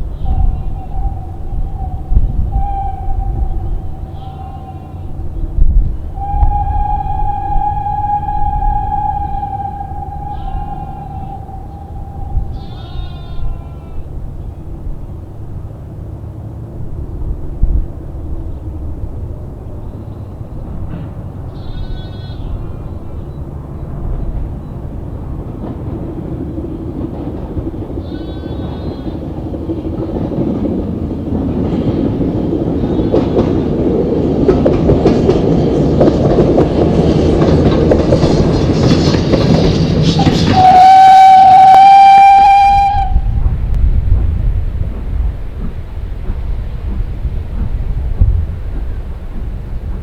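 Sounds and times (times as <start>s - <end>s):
steam locomotive running: 0.0s - 50.0s
steam whistle blast: 0.1s - 5.3s, 6.1s - 13.5s, 40.0s - 43.4s.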